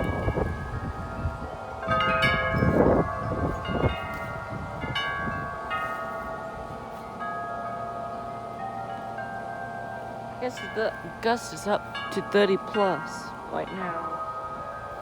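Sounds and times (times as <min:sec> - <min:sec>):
wind gust on microphone: 0:00.0 - 0:06.9
tuned-tube wind chimes ringing: 0:00.0 - 0:15.0.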